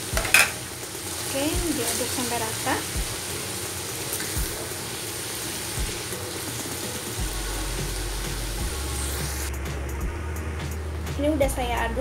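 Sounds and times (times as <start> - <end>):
food sizzling in hot oil: 0.0 - 9.5.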